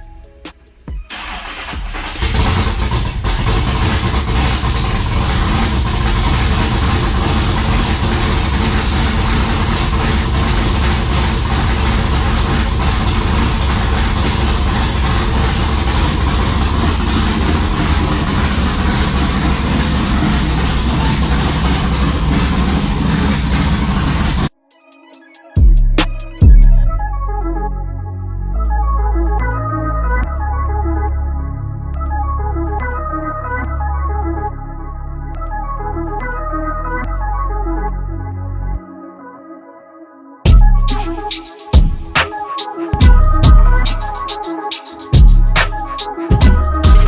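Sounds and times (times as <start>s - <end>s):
engine starter cranking: 0.0s - 24.6s
racing engine idling loudly: 1.1s - 24.5s.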